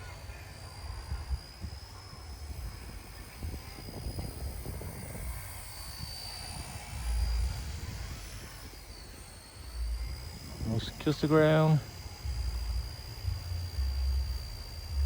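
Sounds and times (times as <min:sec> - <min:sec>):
wind rumbling on microphone: 0:00.0 - 0:11.3
rc helicopter motor whine: 0:00.0 - 0:15.0.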